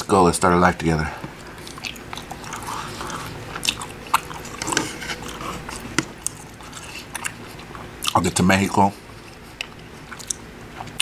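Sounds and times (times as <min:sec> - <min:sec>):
chewing food: 0:01.3 - 0:08.3, 0:09.0 - 0:11.0
wet mouth sounds: 0:01.6 - 0:08.2.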